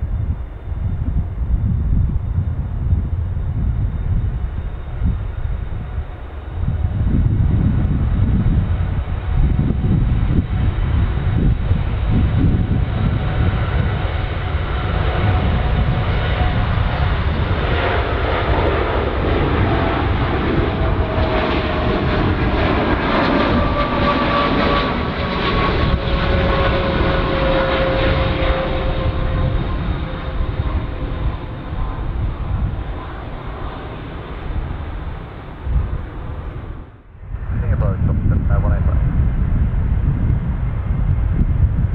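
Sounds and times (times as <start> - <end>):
jet airliner engines passing: 0.0 - 41.9.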